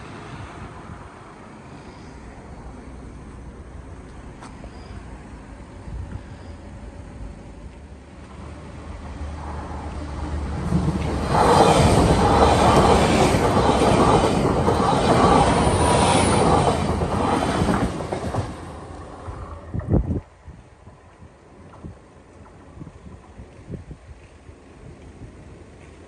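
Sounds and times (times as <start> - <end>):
train passing on rails: 0.0 - 26.0.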